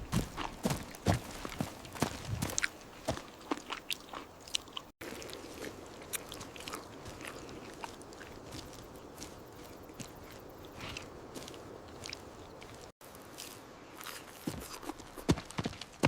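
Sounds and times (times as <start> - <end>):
chewing meat with crunches: 0.0 - 13.0.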